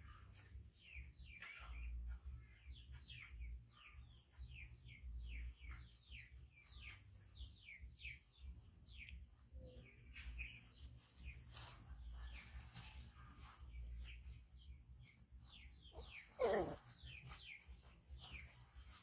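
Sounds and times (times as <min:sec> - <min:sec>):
faint bird chirping: 0:00.0 - 0:19.0.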